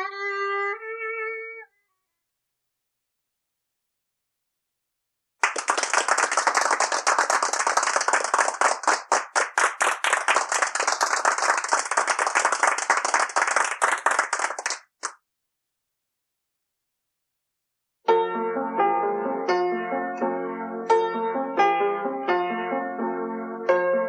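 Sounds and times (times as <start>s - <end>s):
hands clapping: 5.4s - 15.2s.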